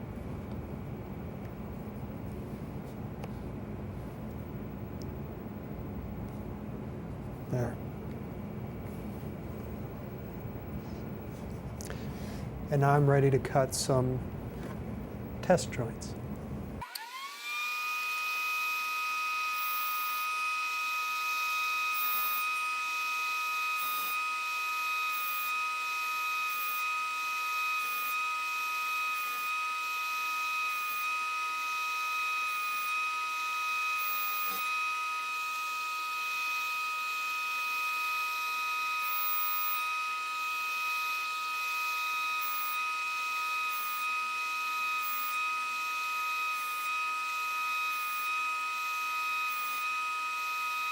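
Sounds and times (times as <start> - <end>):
router motor whining: 16.8 - 50.9.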